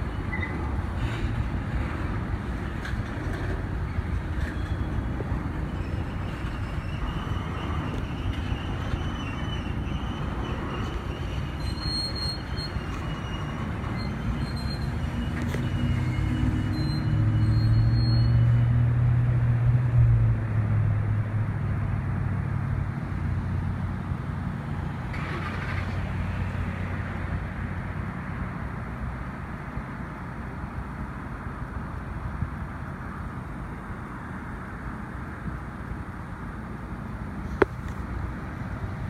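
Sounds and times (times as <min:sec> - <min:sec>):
high wheel squeal: 0:00.0 - 0:02.0, 0:02.7 - 0:18.7, 0:25.2 - 0:25.8
train wheels rumbling on rail: 0:00.0 - 0:18.6.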